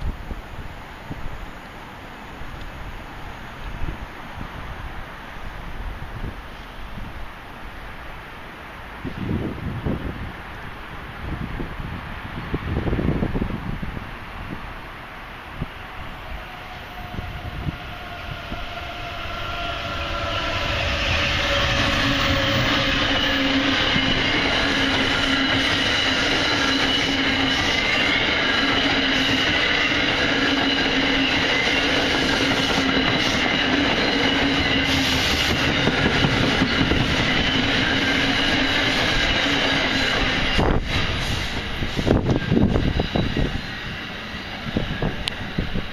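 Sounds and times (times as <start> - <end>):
train wheels rushing on rails: 8.6 - 45.9
falling whine: 15.6 - 45.9
high ringing from rails: 16.4 - 45.9.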